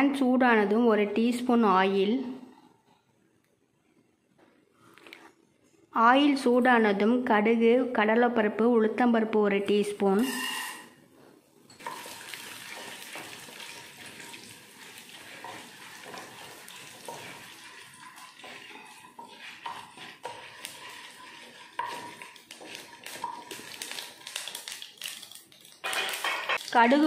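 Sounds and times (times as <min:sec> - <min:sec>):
wooden spatula stirring: 0:11.7 - 0:26.8
seeds and dal sizzling in oil: 0:11.7 - 0:27.0.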